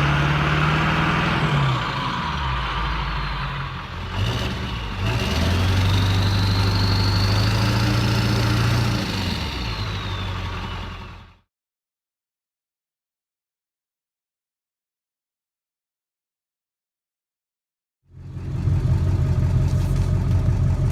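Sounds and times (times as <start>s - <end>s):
diesel engine exhaust revving: 0.0s - 11.4s
turbo whistle: 6.1s - 8.1s.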